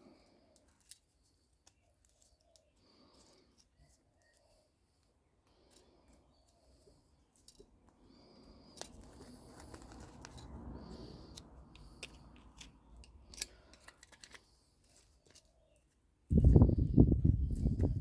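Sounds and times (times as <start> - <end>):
hand cutters snipping wire: 11.3 - 15.5.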